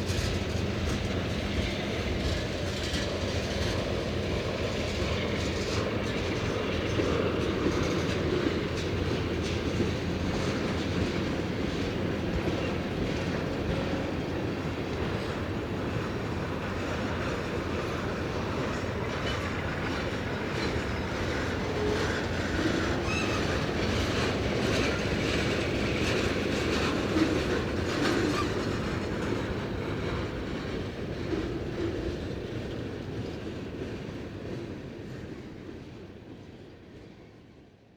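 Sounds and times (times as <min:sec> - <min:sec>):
freight train wheels clacking: 0:00.0 - 0:37.4.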